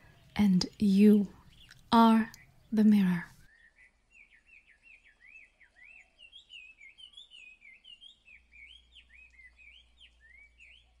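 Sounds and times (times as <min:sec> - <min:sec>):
bird whistled chirps: 0:03.5 - 0:11.0.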